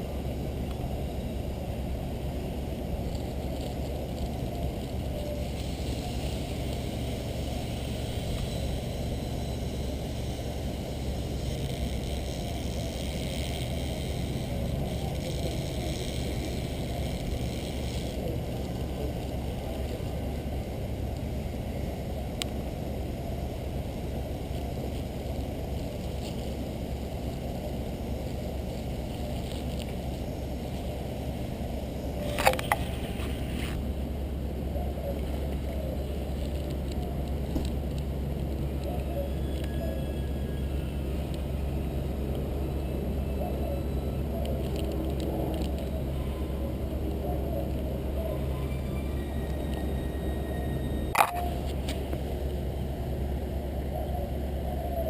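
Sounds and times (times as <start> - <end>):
muffled low rumble: 0.0 - 39.2.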